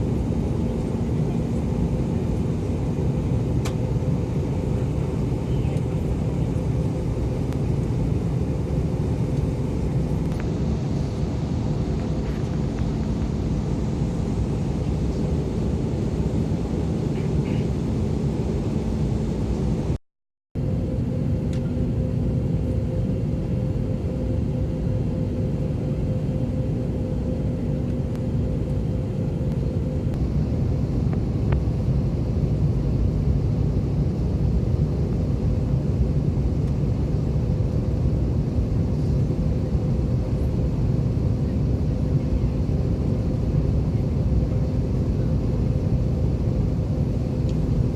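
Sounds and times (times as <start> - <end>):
airliner cabin rumble: 0.0 - 20.0, 20.6 - 47.9.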